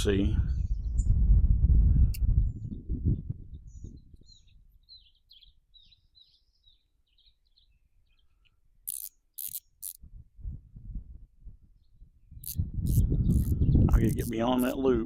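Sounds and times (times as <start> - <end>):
songbird chirping: 3.5 - 10.0, 11.7 - 15.0
short hissing rushes: 12.4 - 13.6.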